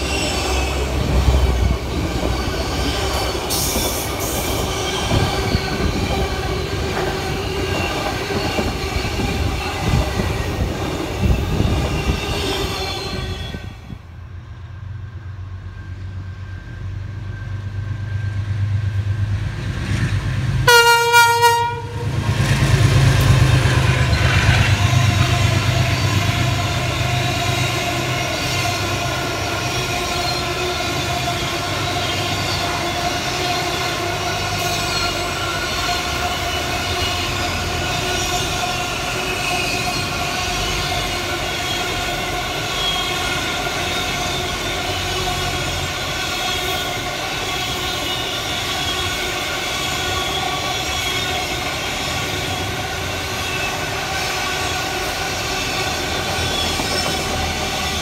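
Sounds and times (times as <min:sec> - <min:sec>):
freight train rumbling past: 0:00.0 - 0:58.0
train horn: 0:20.6 - 0:22.2, 0:24.7 - 0:52.0.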